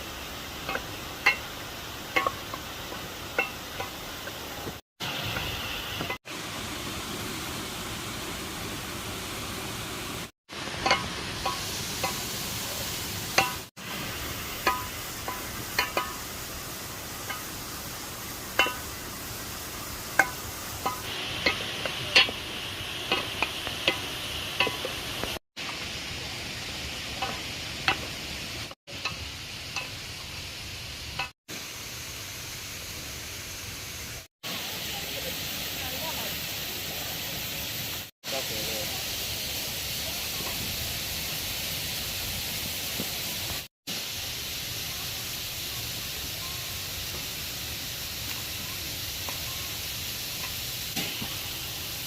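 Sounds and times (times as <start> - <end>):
waterfall rushing: 0.0 - 28.7
utensil clinking against pot: 0.6 - 4.0, 10.8 - 12.2, 13.4 - 13.7, 14.6 - 16.3, 18.5 - 19.0, 20.2 - 22.4, 23.0 - 25.0.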